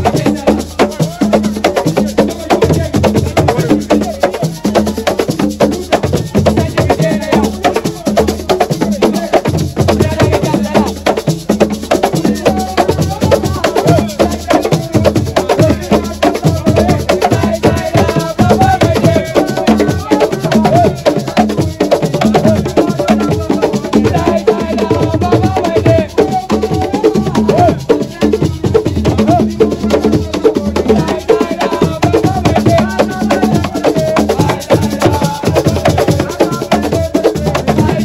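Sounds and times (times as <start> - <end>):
fast drum percussion: 0.0 - 38.0
sharp wood block beat: 0.0 - 38.0
person singing wavering melody: 12.2 - 38.0.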